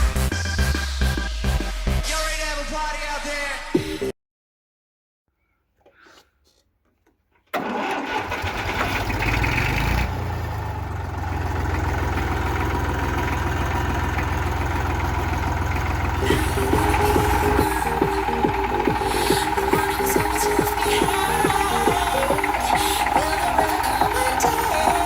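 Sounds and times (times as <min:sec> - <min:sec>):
tractor engine running: 0:07.5 - 0:25.0.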